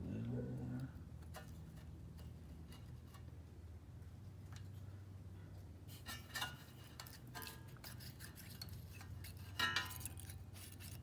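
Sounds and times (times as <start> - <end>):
steady low hum: 0.0 - 11.0
metal tools clicking and scraping: 6.0 - 11.0.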